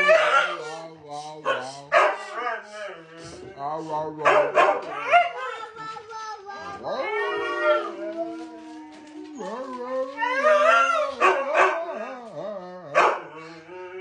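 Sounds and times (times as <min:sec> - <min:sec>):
husky howl-like calls: 0:06.9 - 0:14.0.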